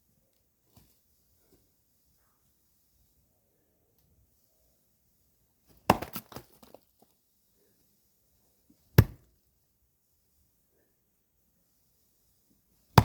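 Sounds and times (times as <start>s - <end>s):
axe splitting firewood: 5.8s - 6.8s, 9.0s - 9.3s.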